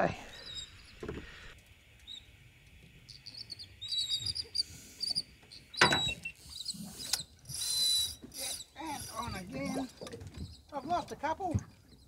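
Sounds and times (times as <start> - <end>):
birds chirping: 0.0 - 2.4, 3.0 - 7.4.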